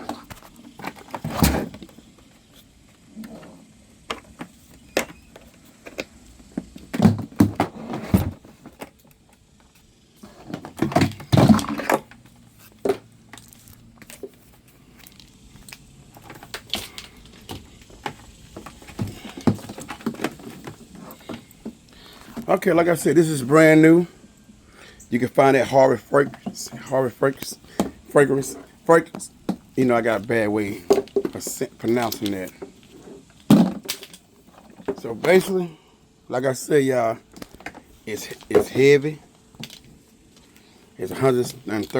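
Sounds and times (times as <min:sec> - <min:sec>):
objects being handled: 0:00.0 - 0:22.6.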